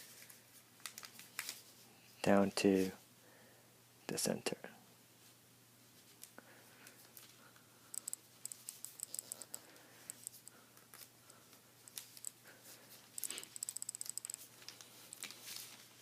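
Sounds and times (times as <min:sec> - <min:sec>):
paper being folded and creased: 0:00.0 - 0:01.8, 0:14.6 - 0:16.0.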